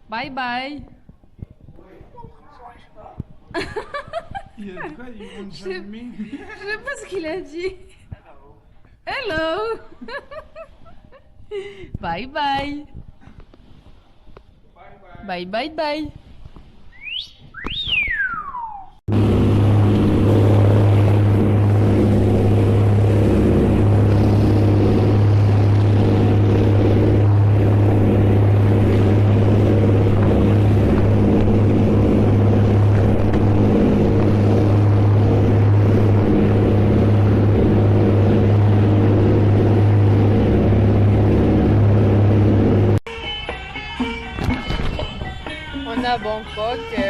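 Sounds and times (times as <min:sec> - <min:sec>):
engine droning: 0:18.4 - 0:47.0.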